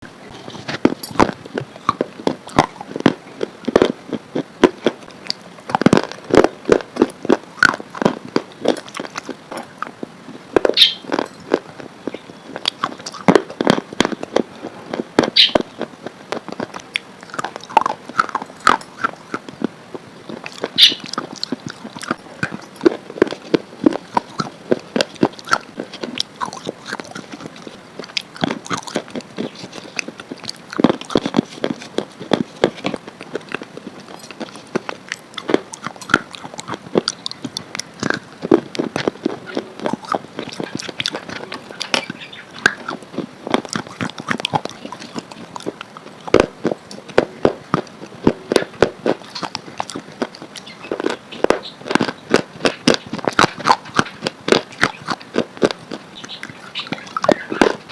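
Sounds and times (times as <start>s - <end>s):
crunchy chewing: 0.0s - 57.9s.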